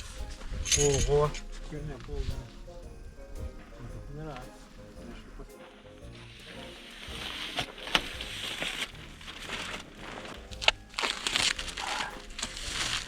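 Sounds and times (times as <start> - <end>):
plastic wrapping crinkling: 6.2 - 13.0.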